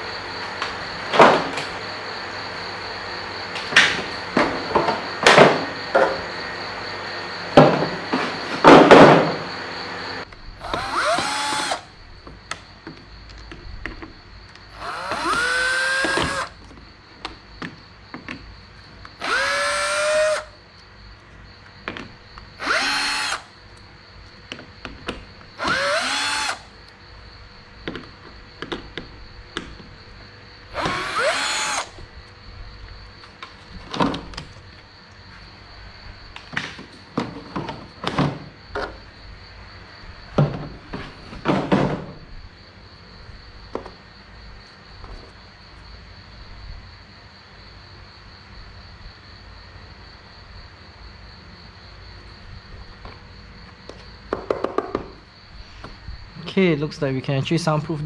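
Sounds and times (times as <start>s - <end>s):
power drill whining: 9.4s - 11.9s, 14.7s - 16.6s, 19.2s - 20.5s, 22.6s - 23.5s, 25.6s - 26.7s, 30.7s - 32.0s
sharp knocks and clicks: 27.8s - 29.9s, 53.9s - 55.2s.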